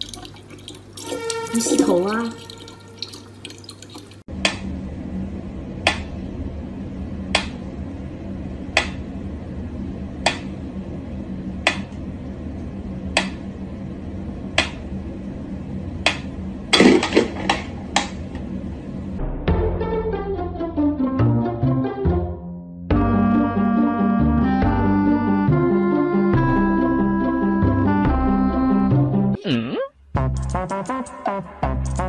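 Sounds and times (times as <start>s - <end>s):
low steady hum: 0.0s - 19.3s.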